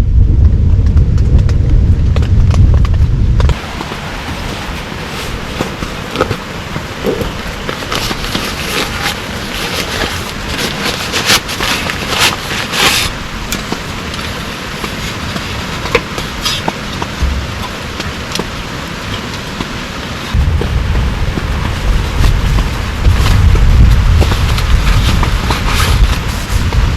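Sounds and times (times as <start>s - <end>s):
heavy rain hissing: 3.5s - 26.9s
raindrops tapping a surface: 5.6s - 26.9s.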